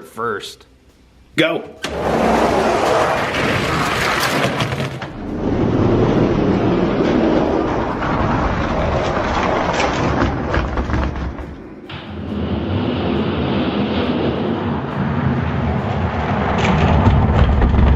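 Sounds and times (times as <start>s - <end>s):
toy truck wheels rumbling on track: 1.9s - 17.9s.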